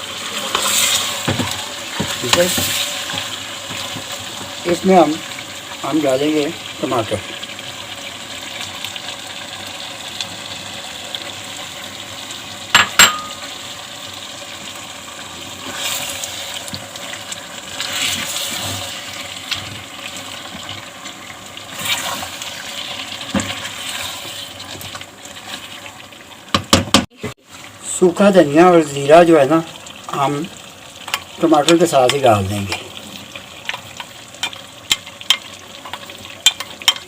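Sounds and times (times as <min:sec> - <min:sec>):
chicken sizzling in a pan: 0:00.0 - 0:37.0
utensil clinking on pan: 0:12.8 - 0:13.4.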